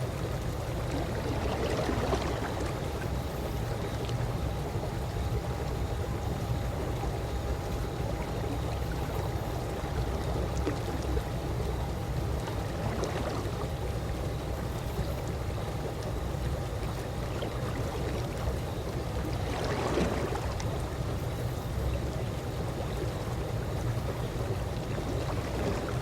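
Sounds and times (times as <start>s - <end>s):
faint steady hum: 0.0s - 26.0s
pool water lapping: 0.0s - 26.0s
water drips and splashes: 8.0s - 26.0s.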